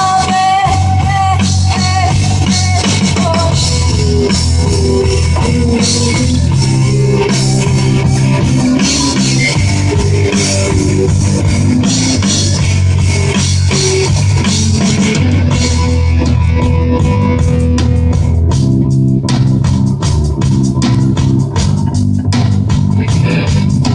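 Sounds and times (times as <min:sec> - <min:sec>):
rock band playing: 0:00.0 - 0:23.9.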